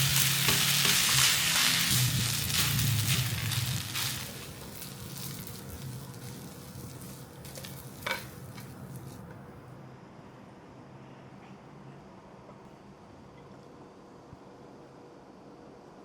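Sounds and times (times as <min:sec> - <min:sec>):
meat sizzling in a pan: 0:00.0 - 0:09.3
stirring scrapes: 0:00.0 - 0:09.4.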